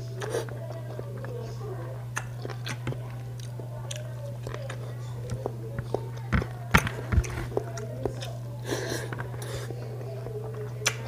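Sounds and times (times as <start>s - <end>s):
person chewing food: 0.0s - 11.0s
steady low hum: 0.0s - 11.0s
mouth clicks and smacks: 2.1s - 8.4s, 10.7s - 11.0s.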